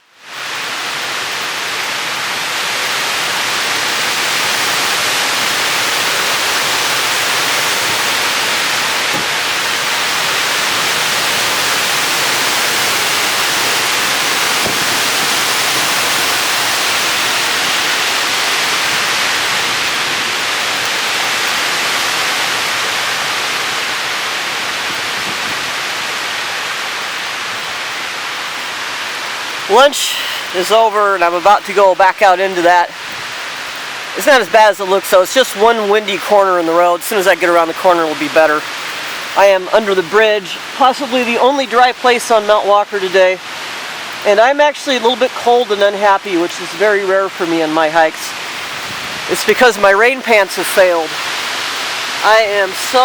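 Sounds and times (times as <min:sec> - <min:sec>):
strong wind blowing: 0:03.8 - 0:22.4, 0:24.5 - 0:26.1, 0:48.4 - 0:49.4.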